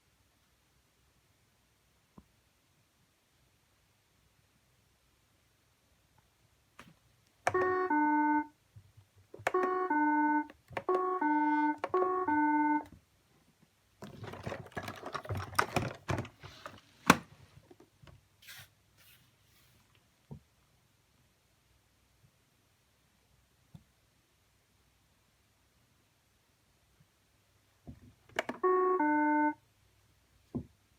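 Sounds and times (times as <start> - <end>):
robot vacuum beep melody: 7.5 - 8.5, 9.5 - 12.9, 28.6 - 29.6
clattering and scraping: 14.0 - 16.8.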